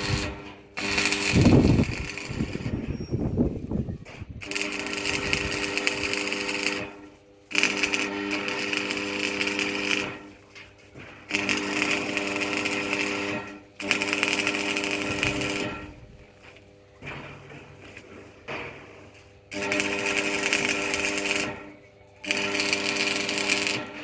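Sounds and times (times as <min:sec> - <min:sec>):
small electric motor whining: 0:00.0 - 0:03.4, 0:04.4 - 0:06.9, 0:11.3 - 0:16.1, 0:19.6 - 0:24.0.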